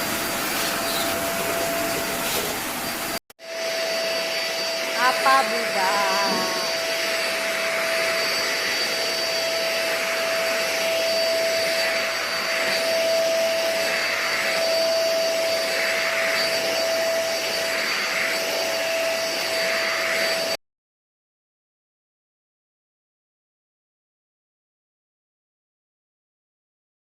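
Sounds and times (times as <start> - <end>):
handheld vacuum cleaner running: 0.0 - 20.6.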